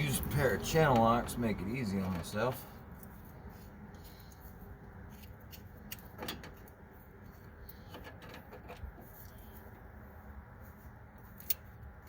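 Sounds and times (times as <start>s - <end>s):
steady low hum: 0.0s - 12.0s
pliers and wrench clicks and scrapes: 5.1s - 6.8s, 11.2s - 11.7s.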